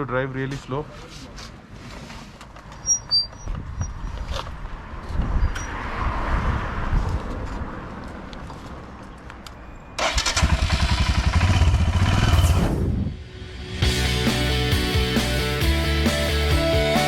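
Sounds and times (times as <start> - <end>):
road noise: 0.0 - 17.0
motorcycle engine running: 10.3 - 12.7.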